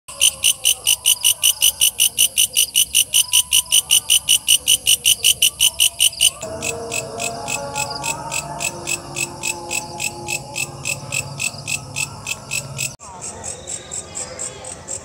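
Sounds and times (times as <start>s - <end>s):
katydid chirping: 0.1s - 13.0s.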